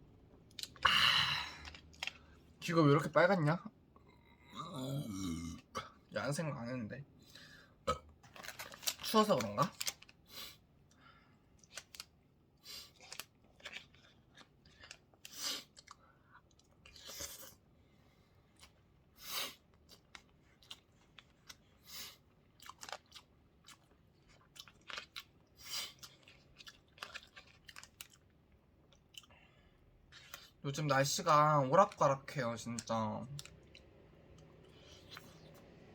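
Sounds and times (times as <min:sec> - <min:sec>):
person chewing: 0:00.5 - 0:02.4, 0:12.7 - 0:17.6, 0:19.5 - 0:30.6, 0:33.4 - 0:35.8.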